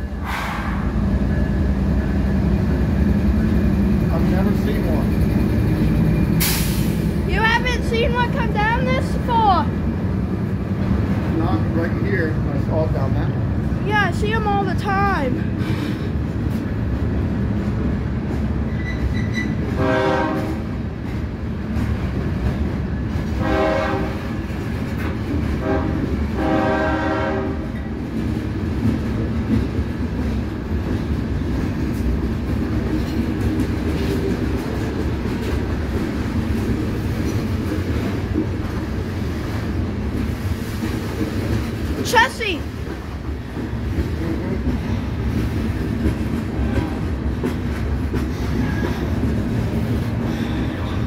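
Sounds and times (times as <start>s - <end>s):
freight train rumbling and clattering: 0.0s - 51.0s
locomotive air horn: 19.7s - 20.6s, 23.4s - 24.3s, 25.6s - 27.7s.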